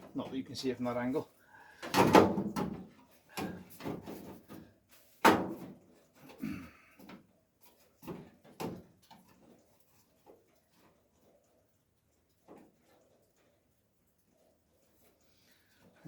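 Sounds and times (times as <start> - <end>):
metal knocks and clatter: 1.8 - 6.1.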